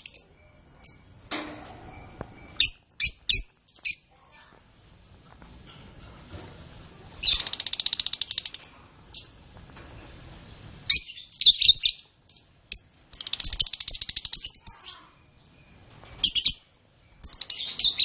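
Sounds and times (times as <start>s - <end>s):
canary singing: 0.0s - 1.2s, 1.8s - 4.4s, 10.9s - 18.0s.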